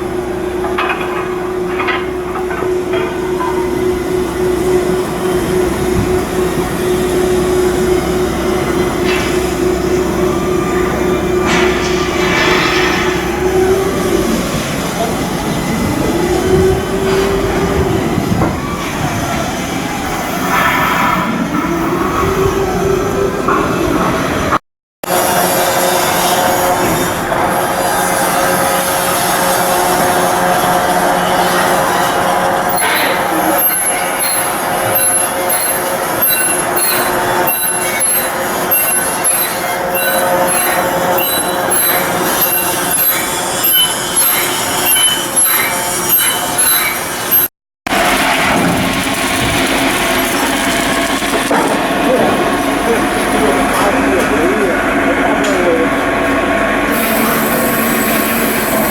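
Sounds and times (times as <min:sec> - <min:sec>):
steady industrial din: 0:00.0 - 0:20.6, 0:21.3 - 0:58.9
loud machinery noise: 0:00.0 - 0:58.9
metallic squealing and scraping: 0:02.6 - 0:19.6, 0:25.0 - 0:47.5, 0:56.9 - 0:58.9
short shrill tones: 0:32.7 - 0:47.5
motor whine: 0:56.8 - 0:58.9.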